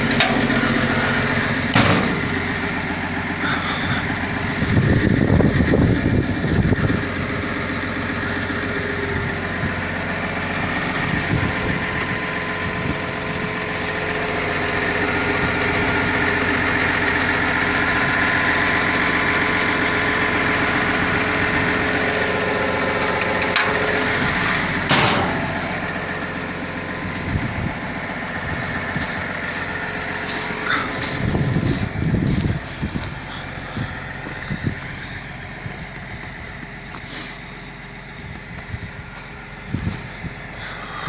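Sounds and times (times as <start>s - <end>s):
excavator diesel engine running: 0.0s - 41.0s
sharp knocks: 1.7s - 2.3s.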